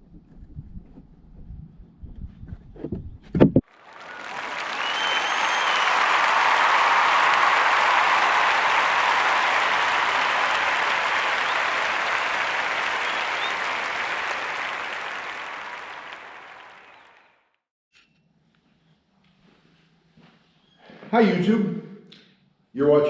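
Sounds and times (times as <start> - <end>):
crowd applause: 3.7 - 17.3
faint whistles: 3.8 - 17.3.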